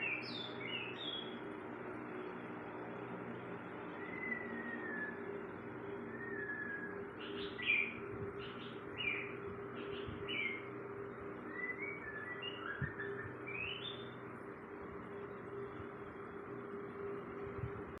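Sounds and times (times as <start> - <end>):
songbird chirping and whistling: 0.0 - 1.4, 4.0 - 10.7, 11.4 - 14.2
steady low hum: 0.0 - 18.0.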